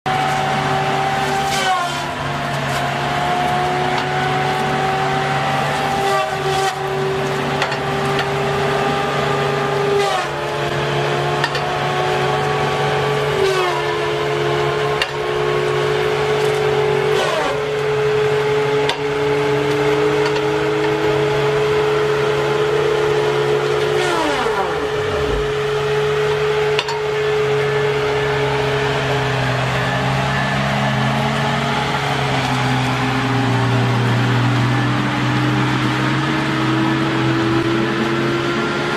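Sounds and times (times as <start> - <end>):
chainsaw cutting wood: 0.1 - 38.7
steady low drone: 24.5 - 38.9.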